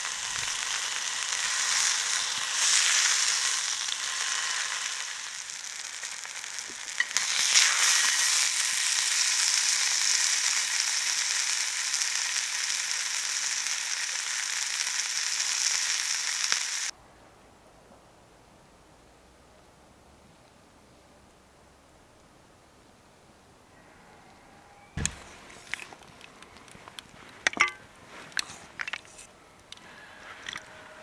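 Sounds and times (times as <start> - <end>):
food sizzling in frying pan: 0.0 - 16.9, 25.0 - 29.2.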